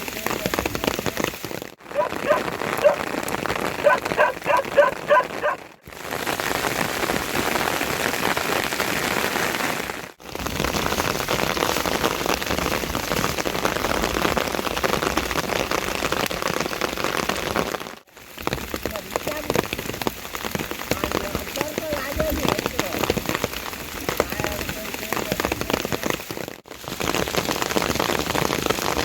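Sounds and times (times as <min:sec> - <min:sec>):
heavy rain falling: 0:00.0 - 0:29.0
dog barking: 0:01.9 - 0:03.1, 0:03.8 - 0:05.7.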